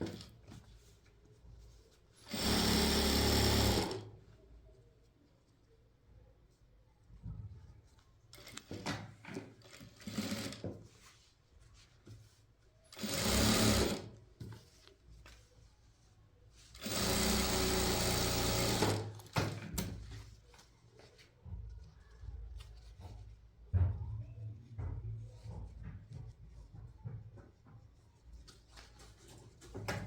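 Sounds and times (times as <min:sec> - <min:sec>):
sewing machine running: 0:02.3 - 0:04.0, 0:09.7 - 0:10.6, 0:13.0 - 0:14.1, 0:16.8 - 0:19.2.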